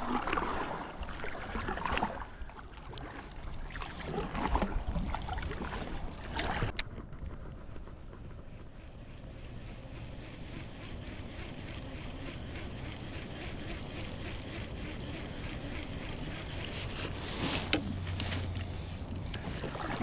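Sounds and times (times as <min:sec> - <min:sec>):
faint ticks: 0:06.1 - 0:19.7
sharp clicks: 0:06.7 - 0:19.7
river current: 0:09.9 - 0:20.0.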